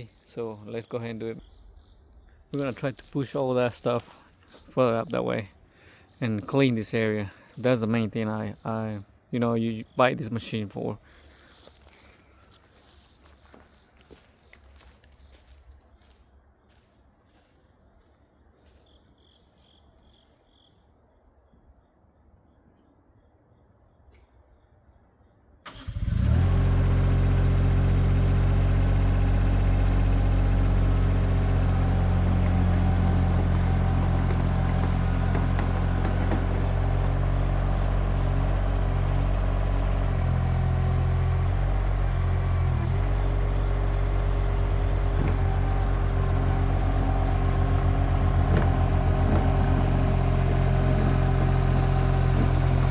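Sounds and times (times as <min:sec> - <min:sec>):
skid steer engine running: 0:25.7 - 0:52.9.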